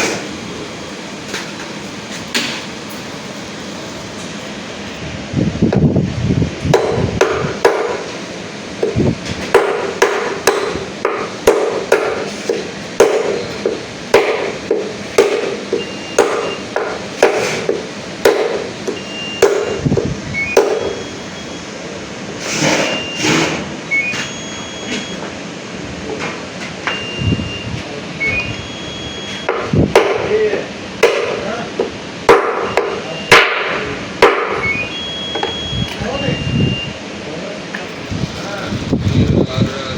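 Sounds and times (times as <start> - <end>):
ringing hammer blows: 8.8 - 21.7, 28.2 - 31.5, 32.3 - 36.4
short high-pitched beeps: 15.8 - 16.7, 18.9 - 21.7, 22.8 - 25.3, 26.9 - 29.7, 32.6 - 33.4, 34.6 - 37.0.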